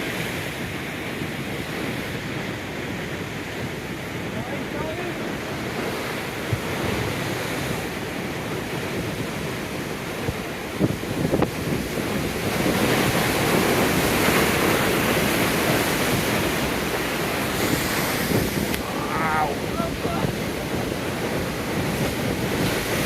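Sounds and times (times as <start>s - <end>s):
ocean waves breaking over rocks: 0.0s - 23.0s.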